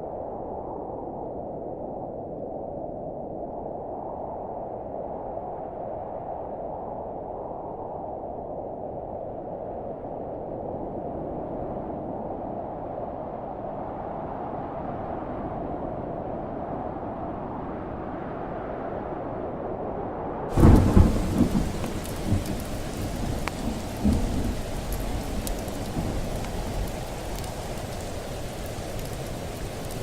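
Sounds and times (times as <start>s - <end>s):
steady rain: 20.5s - 30.0s
thunder rumbling: 20.5s - 30.0s.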